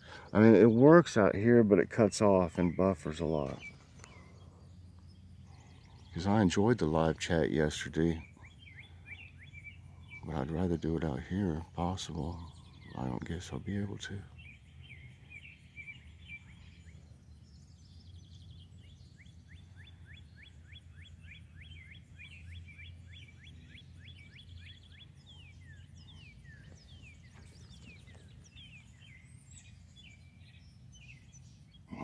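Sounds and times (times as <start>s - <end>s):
low hum: 0.0s - 32.0s
songbirds singing and chirping: 0.0s - 32.0s.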